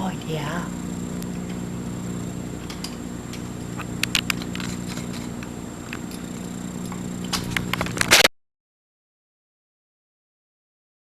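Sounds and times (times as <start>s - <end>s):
low mechanical hum: 0.0s - 8.3s
sharp clicks and taps: 2.6s - 4.7s.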